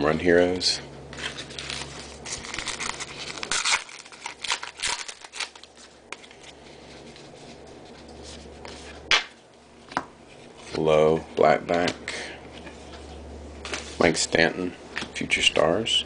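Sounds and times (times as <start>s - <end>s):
trading cards rustling and clicking: 1.1s - 10.0s.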